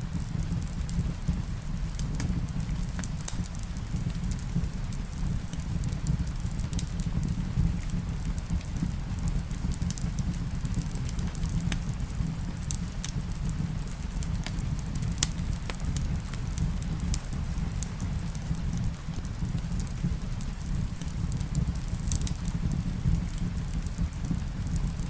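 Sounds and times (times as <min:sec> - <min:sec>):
steady rain: 0:00.0 - 0:25.0
wood fire crackling and popping: 0:00.0 - 0:25.0.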